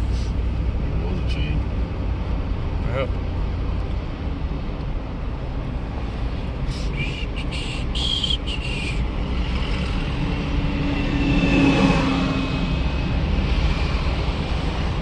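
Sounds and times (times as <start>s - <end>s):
vehicle road and engine rumble: 0.0s - 15.0s
steady engine tone: 6.5s - 15.0s.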